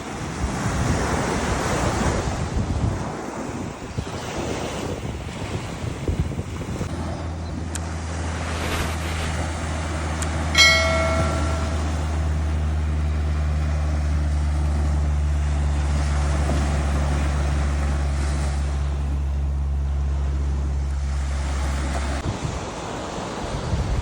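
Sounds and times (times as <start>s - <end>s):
wind: 0.0s - 24.0s
surf: 5.0s - 23.2s
engine humming: 6.4s - 22.3s.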